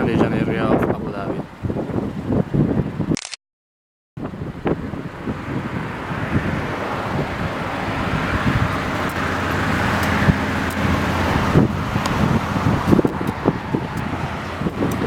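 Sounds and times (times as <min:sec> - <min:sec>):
wind buffeting microphone: 0:00.0 - 0:03.2, 0:04.2 - 0:15.0
low traffic hum: 0:04.2 - 0:15.0
vehicle passing on highway: 0:04.2 - 0:15.0.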